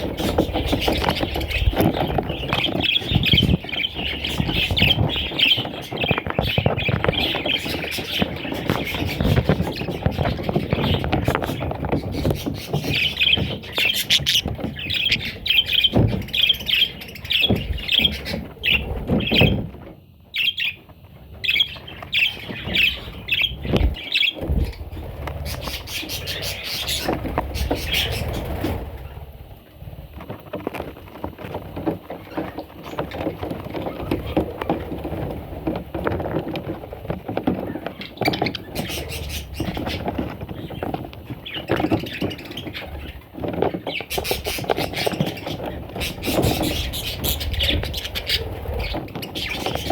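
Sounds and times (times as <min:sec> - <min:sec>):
bird chicks chirping: 0:00.0 - 0:49.9.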